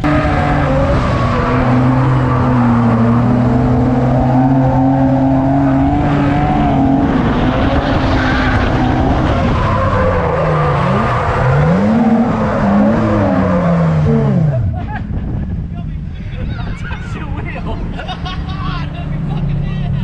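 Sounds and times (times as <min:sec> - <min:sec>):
car engine revving high: 0:00.0 - 0:14.8
tyres skidding: 0:00.0 - 0:20.0.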